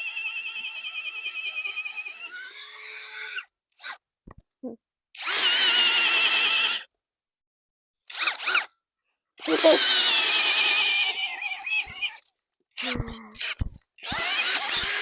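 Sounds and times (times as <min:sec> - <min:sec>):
cordless drill boring into ground: 0:05.2 - 0:06.9, 0:08.1 - 0:08.7, 0:09.4 - 0:12.2, 0:12.8 - 0:15.0.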